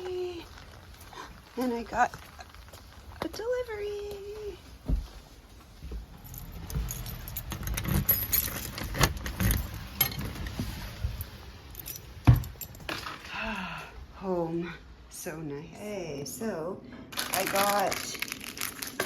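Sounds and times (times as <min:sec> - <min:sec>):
keys jangling: 0:06.2 - 0:10.3, 0:11.2 - 0:13.0.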